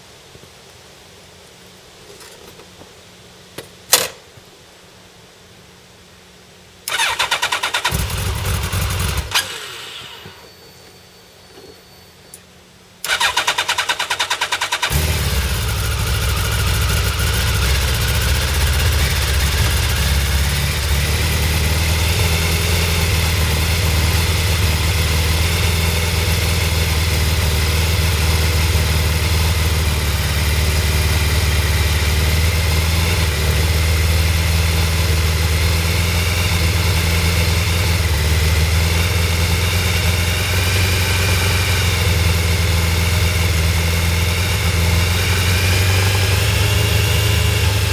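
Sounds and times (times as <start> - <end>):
motorcycle engine idling: 6.9 - 10.7, 13.0 - 47.9
electric starter cranking: 6.9 - 12.4, 13.0 - 29.6.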